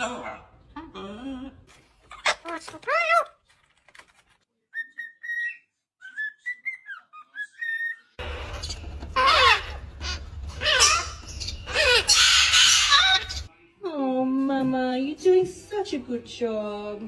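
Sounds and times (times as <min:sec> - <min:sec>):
parrot whistling: 0:04.8 - 0:13.5
parrot squawking harshly: 0:05.0 - 0:13.5.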